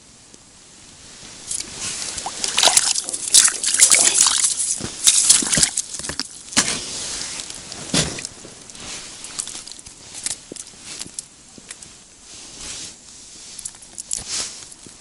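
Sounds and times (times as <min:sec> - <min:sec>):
fish thrashing in slushy water: 0:01.5 - 0:08.0.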